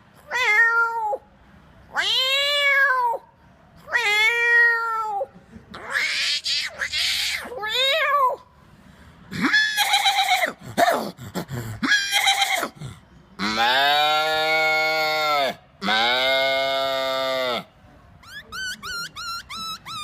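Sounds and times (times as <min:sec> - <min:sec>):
man imitating animal calls: 0:09.3 - 0:20.0.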